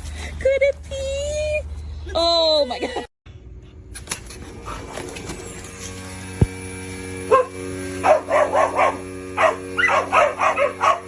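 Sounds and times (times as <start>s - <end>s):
dog barking: 7.3s - 11.0s.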